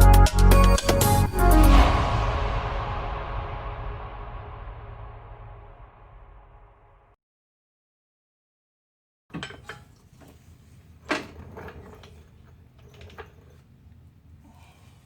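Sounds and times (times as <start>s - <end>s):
metal clanks and knocks: 9.3s - 13.8s.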